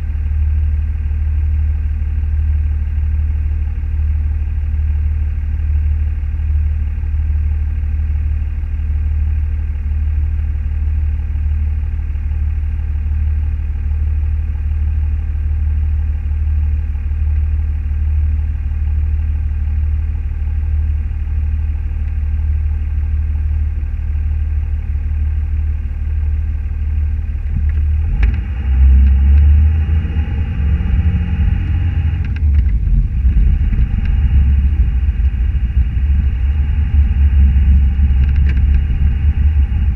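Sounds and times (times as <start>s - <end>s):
car engine and road noise: 21.3s - 39.9s.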